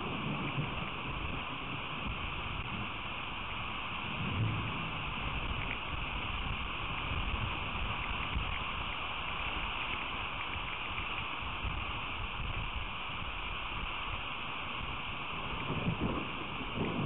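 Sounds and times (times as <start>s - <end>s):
steady rain hiss: 0.0s - 17.0s
wind buffeting microphone: 0.0s - 17.0s
rain drop ticks: 4.3s - 12.8s.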